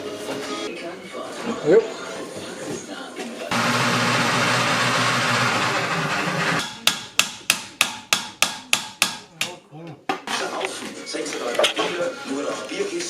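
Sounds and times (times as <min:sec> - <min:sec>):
steady loud noise: 0:03.5 - 0:06.6.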